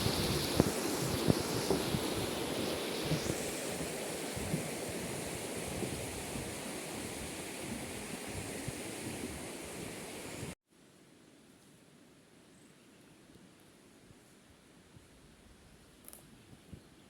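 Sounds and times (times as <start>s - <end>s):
wind buffeting microphone: 0.0s - 10.5s
wind rushing through trees: 0.0s - 10.6s.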